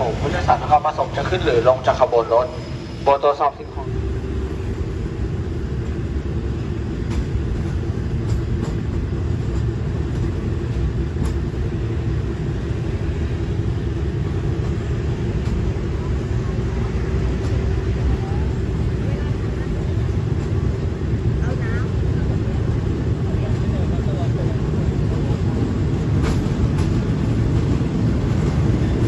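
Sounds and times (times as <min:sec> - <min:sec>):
train rumbling: 0:00.0 - 0:29.0
light clicks of train: 0:04.1 - 0:29.0.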